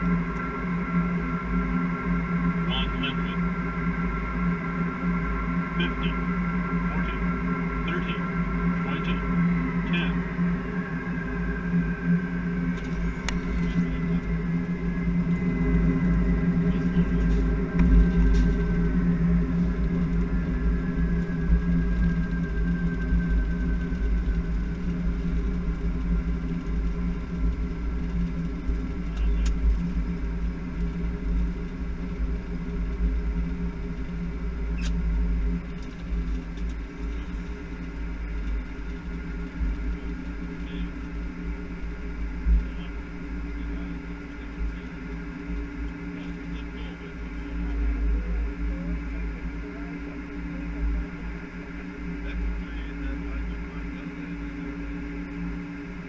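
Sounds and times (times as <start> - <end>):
low rumble with engine hum: 0.0 - 56.0.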